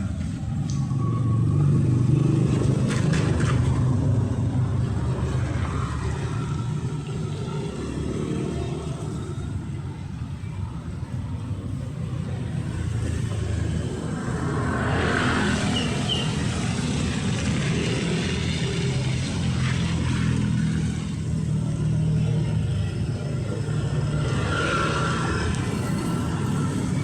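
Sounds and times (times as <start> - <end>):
street traffic rumble: 0.0 - 27.0
vehicle passing with hiss: 12.1 - 27.0
high chirps: 15.7 - 16.4.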